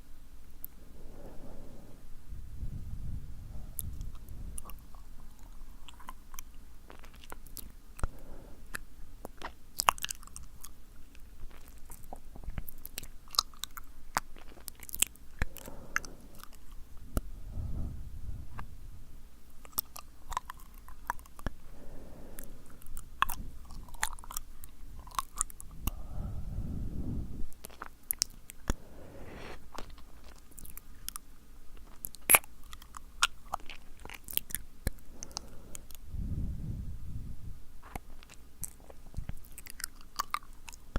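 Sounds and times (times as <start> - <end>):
soft breathing: 0.6 - 6.5, 7.3 - 9.6, 13.8 - 30.5, 34.8 - 39.6.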